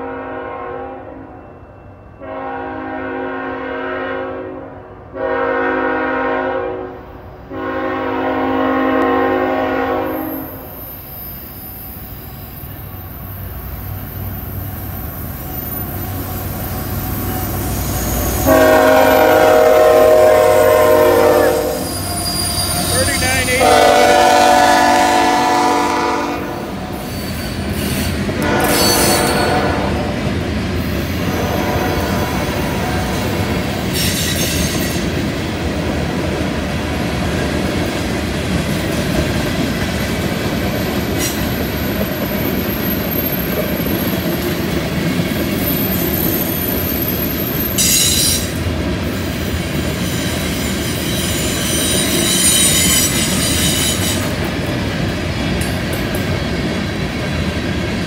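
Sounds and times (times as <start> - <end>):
train wheels rumbling on rail: 5.0 - 58.0
high-pitched wheel squeal: 10.1 - 18.5, 21.2 - 23.6, 26.9 - 29.6, 33.9 - 35.0, 45.6 - 48.6, 50.0 - 54.3.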